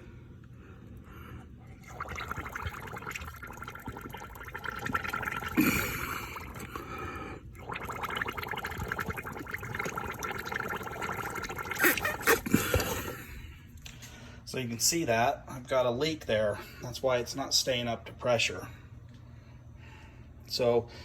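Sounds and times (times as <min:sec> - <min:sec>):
air bubbling through liquid: 0:01.6 - 0:13.5.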